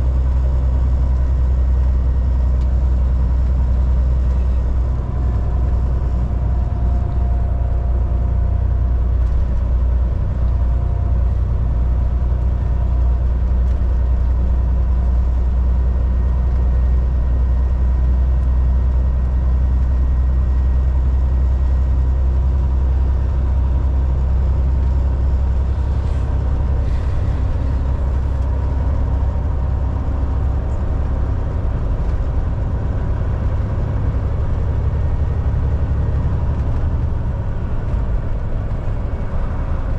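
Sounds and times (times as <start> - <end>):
truck engine drone: 0.0 - 39.9
tyre and road noise: 19.2 - 39.9.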